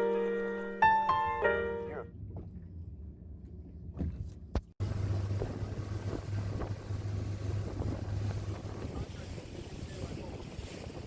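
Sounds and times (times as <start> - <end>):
low rumble: 1.3 - 10.9
wind buffeting microphone: 2.1 - 11.0
motorboat engine droning: 4.8 - 11.0.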